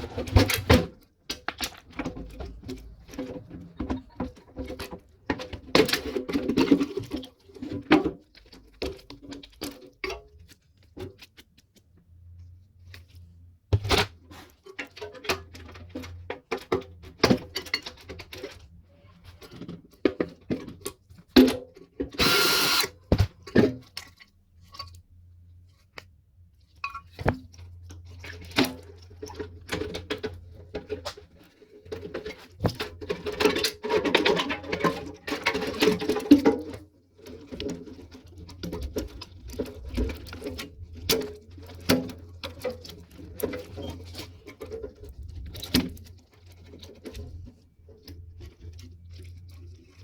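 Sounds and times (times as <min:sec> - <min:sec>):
power tool burst: 0:22.2 - 0:22.9.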